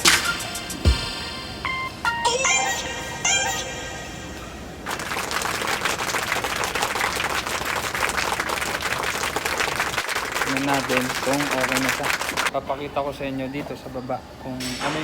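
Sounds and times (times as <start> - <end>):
treadmill running: 4.8 - 12.5.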